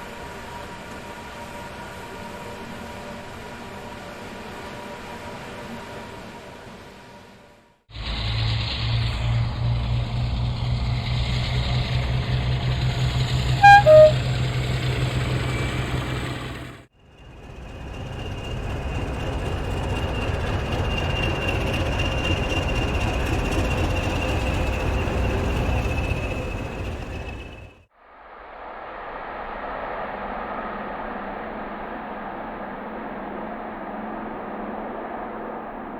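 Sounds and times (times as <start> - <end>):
train rumbling: 7.9 - 27.9
locomotive engine throbbing: 8.0 - 27.8
two-tone train horn: 13.6 - 14.7.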